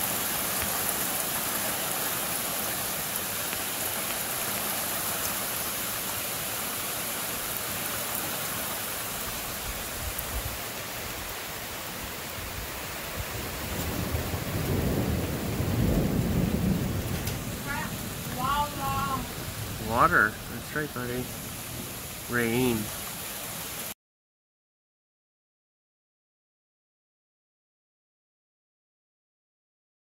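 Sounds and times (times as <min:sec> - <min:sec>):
heavy rain pouring on trees: 0:00.0 - 0:24.0.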